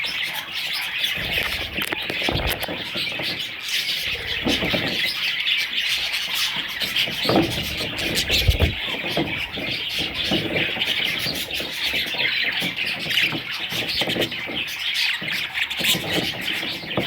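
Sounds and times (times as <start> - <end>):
budgerigars chattering and chirping: 0.0 - 17.0
short low thump: 8.0 - 8.9.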